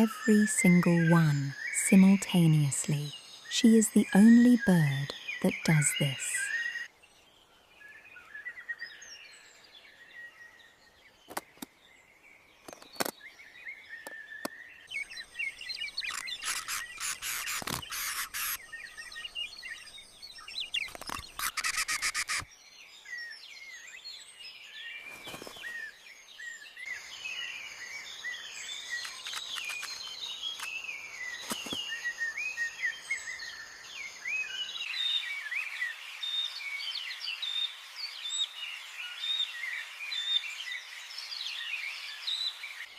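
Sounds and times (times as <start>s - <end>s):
birds chirping and twittering: 0.0s - 42.9s
sharp clicks: 29.0s - 30.7s.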